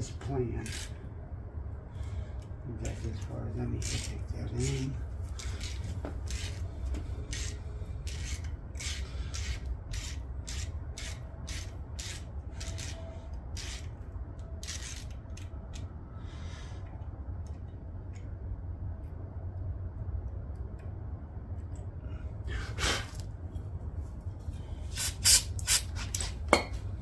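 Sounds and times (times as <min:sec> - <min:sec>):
steady low hum: 0:00.0 - 0:27.0
ratchet rasping strokes: 0:00.6 - 0:01.0, 0:02.8 - 0:14.0, 0:14.6 - 0:15.5.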